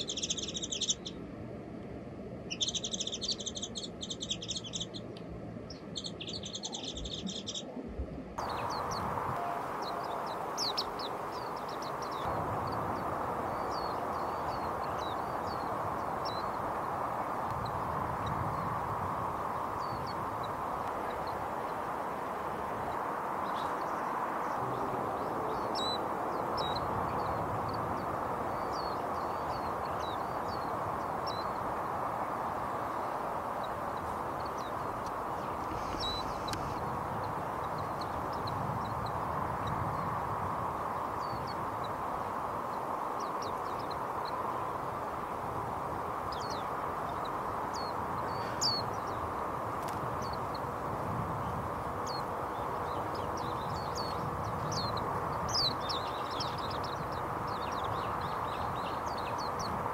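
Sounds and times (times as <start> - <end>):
songbirds chirping: 0.0 - 59.9
steady background hiss: 0.0 - 59.9.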